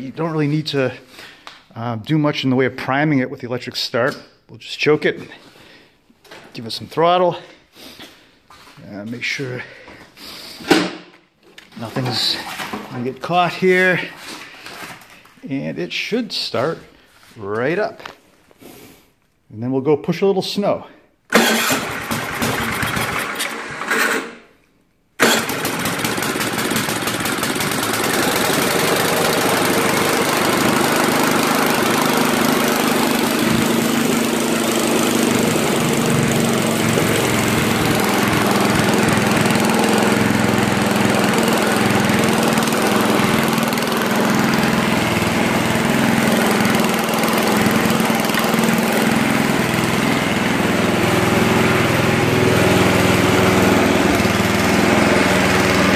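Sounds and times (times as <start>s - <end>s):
snowblower engine running: 21.3s - 24.2s, 25.2s - 55.9s
rough ticking engine sound: 25.2s - 55.9s.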